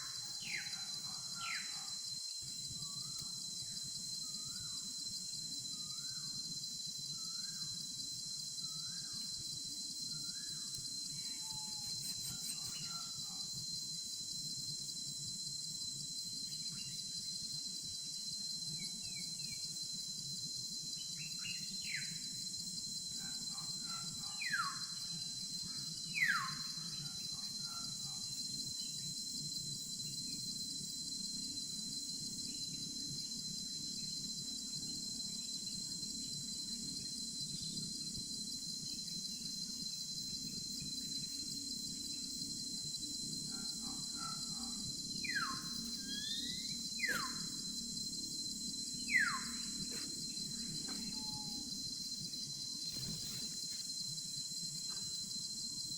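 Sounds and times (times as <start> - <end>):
crickets and insects chirring: 0.0 - 55.9
bird whistled calls: 45.2 - 47.4, 49.1 - 49.6, 51.0 - 51.7.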